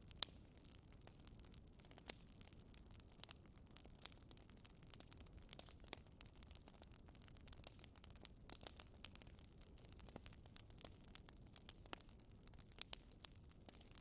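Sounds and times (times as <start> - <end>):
low fire rumble: 0.0 - 14.0
wood fire crackling: 0.0 - 14.0.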